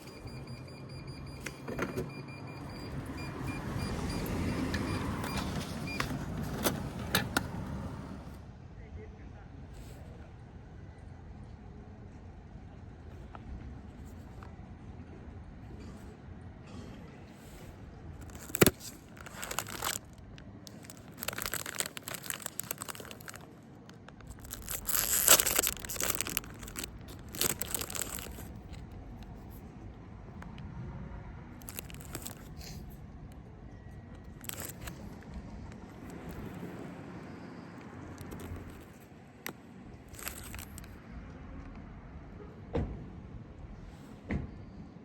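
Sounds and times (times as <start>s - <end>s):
plastic wrapper tearing and crinkling: 18.2s - 28.8s, 31.6s - 32.5s, 34.3s - 35.0s, 38.2s - 39.0s, 40.1s - 40.9s.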